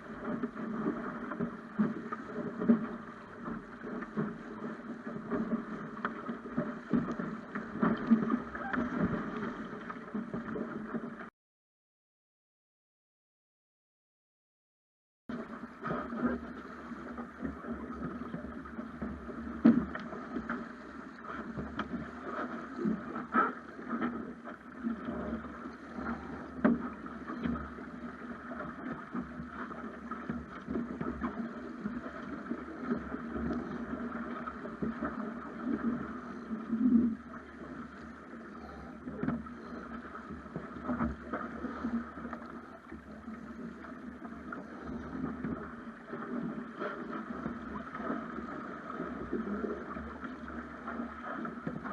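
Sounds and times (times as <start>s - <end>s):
water splashing along hull: 0.0s - 11.3s, 15.3s - 51.9s.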